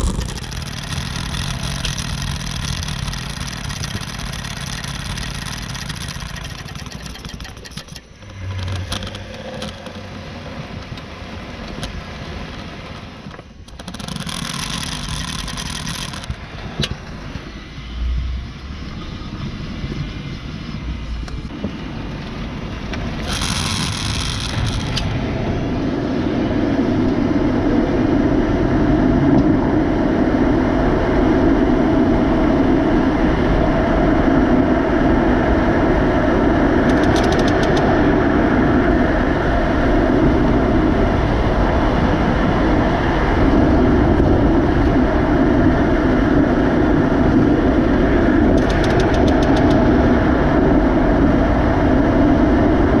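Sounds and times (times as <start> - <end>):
quick clicking: 0.0 - 10.0, 13.6 - 17.0, 22.9 - 25.1, 36.8 - 37.9, 48.5 - 49.9
car grinding rumble while driving: 0.0 - 20.2, 20.8 - 25.6.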